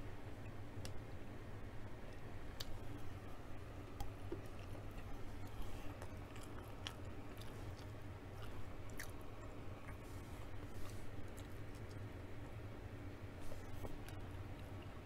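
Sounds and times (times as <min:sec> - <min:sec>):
faint low hum: 0:00.0 - 0:15.0
person chewing: 0:03.8 - 0:12.1.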